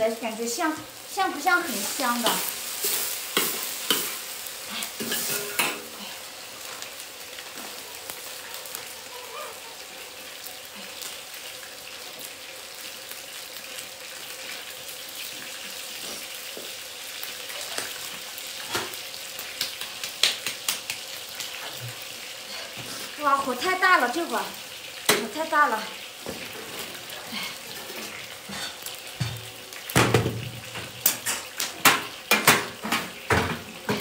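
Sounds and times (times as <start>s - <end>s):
stir-fry sizzling in a wok: 0.0s - 34.0s
spatula scraping a wok: 1.7s - 6.2s, 26.2s - 29.0s.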